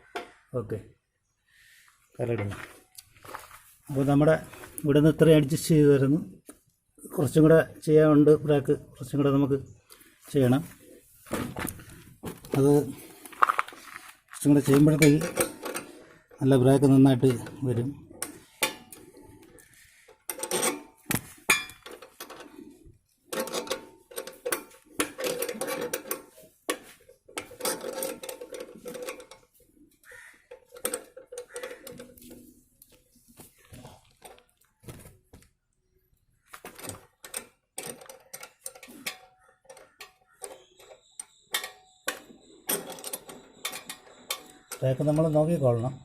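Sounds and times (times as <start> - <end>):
metal tools clinking and tapping: 14.3 - 16.0, 17.1 - 19.4, 20.1 - 33.0, 36.6 - 46.0.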